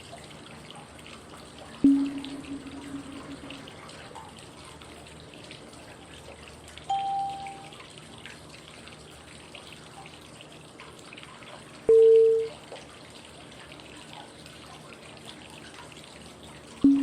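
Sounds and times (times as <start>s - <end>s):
flowing water noise: 0.0s - 17.0s
short clear cue tone: 1.8s - 3.7s, 6.9s - 7.7s, 11.9s - 12.5s.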